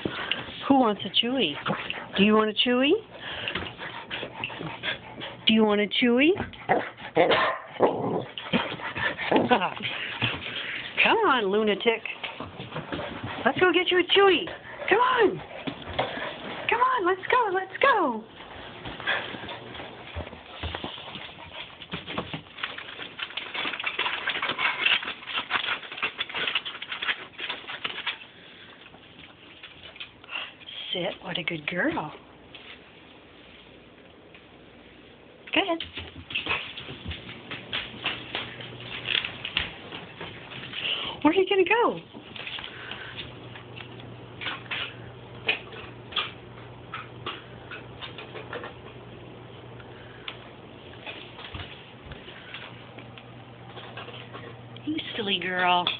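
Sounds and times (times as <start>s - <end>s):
dog claws clicking on hard floor: 18.8s - 30.4s, 35.8s - 41.2s, 42.1s - 49.0s, 50.2s - 55.9s.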